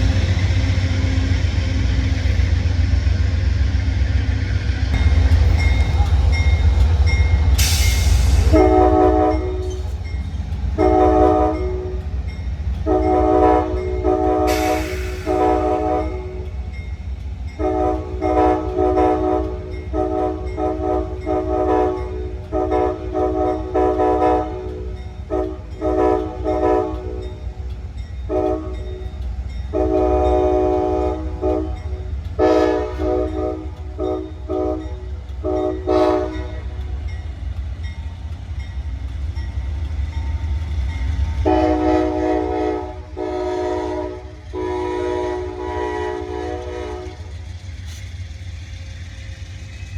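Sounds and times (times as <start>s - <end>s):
passing train rumble: 0.0s - 49.9s
locomotive air horn blasts: 8.4s - 9.8s, 10.8s - 12.1s, 12.8s - 16.5s, 17.6s - 27.2s, 28.3s - 28.9s, 29.7s - 36.8s, 41.4s - 47.3s.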